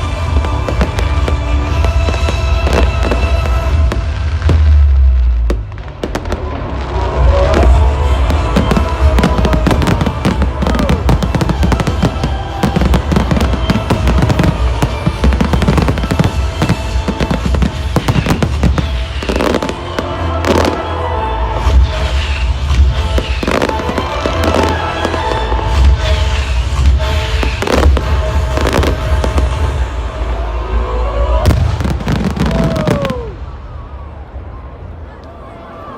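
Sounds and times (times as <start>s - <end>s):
fireworks bangs and crackles: 0.0s - 30.4s, 31.1s - 34.4s
loud music: 0.0s - 33.3s
falling firework whistle: 31.1s - 33.8s.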